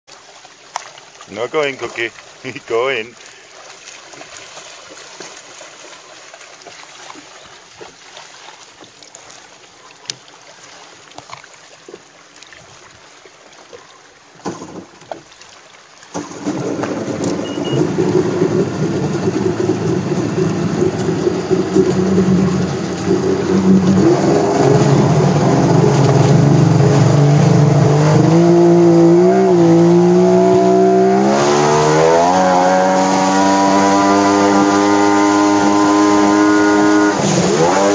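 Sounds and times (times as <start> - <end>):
jet ski engine running: 1.3 - 3.5, 16.1 - 37.9
knocks: 14.4 - 15.2.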